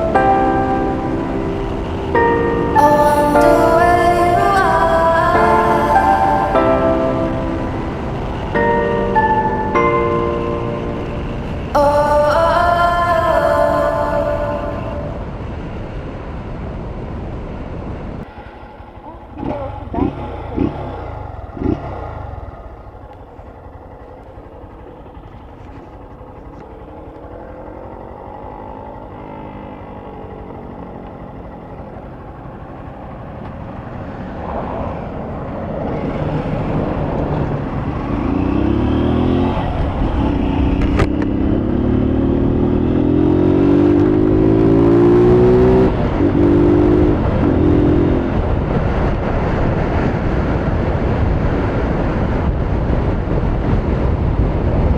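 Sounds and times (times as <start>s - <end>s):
motorcycle engine revving: 18.6s - 54.1s.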